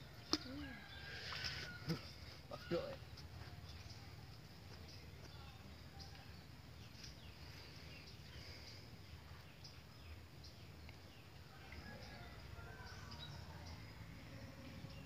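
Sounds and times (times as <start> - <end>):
low steady rumble: 9.0 - 15.0.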